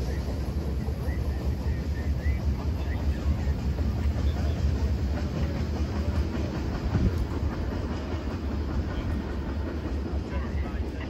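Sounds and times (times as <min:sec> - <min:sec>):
freight train low rumble: 0:00.0 - 0:11.0.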